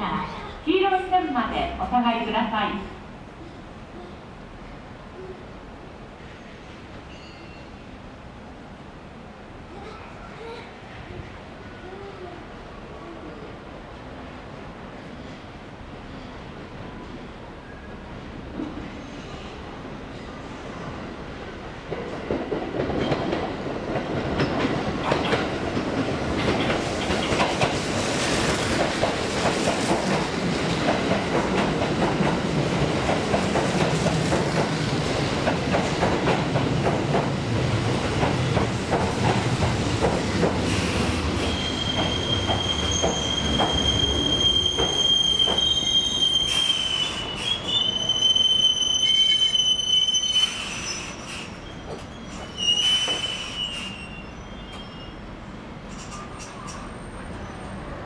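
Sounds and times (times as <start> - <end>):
high brake squeal: 6.4 - 7.8, 40.7 - 55.3, 55.9 - 57.9
train rumble: 19.7 - 47.8
wheels clacking over rail joints: 21.9 - 34.8.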